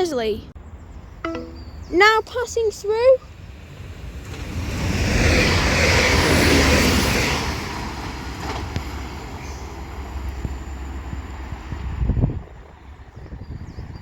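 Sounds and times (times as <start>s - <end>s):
diesel train passing at speed: 2.8s - 13.4s.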